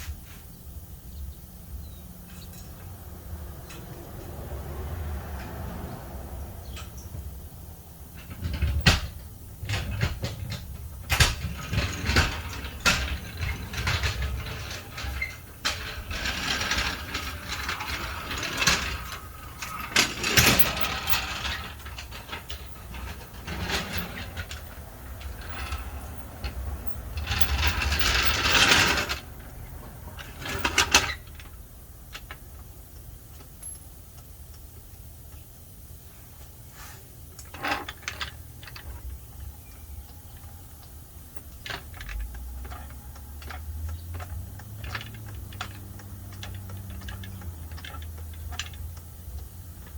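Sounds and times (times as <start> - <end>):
rattling bursts: 2.2 - 34.0, 37.4 - 49.9
metal clanks and knocks: 8.1 - 32.7.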